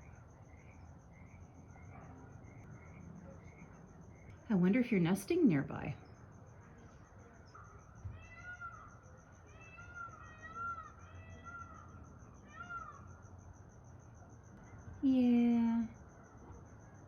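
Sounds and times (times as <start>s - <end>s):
faint meow-like calls: 8.0s - 13.2s.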